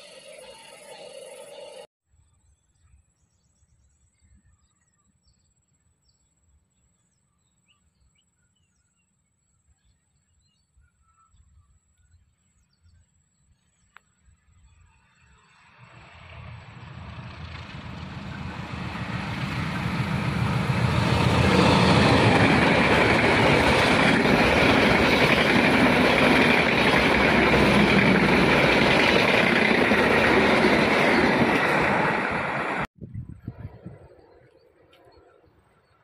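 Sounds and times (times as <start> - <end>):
train passing: 0.0 - 1.9, 14.7 - 32.9
wheels rushing on rail: 0.0 - 1.9, 14.6 - 34.4.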